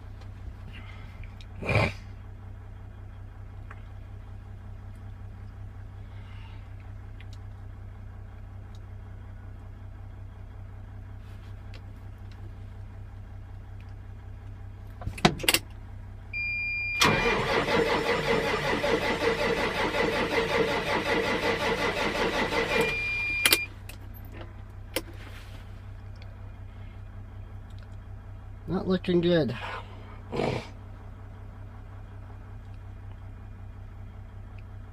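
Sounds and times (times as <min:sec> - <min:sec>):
diesel engine cranking: 0:14.8 - 0:25.2
steady beep: 0:22.7 - 0:23.7.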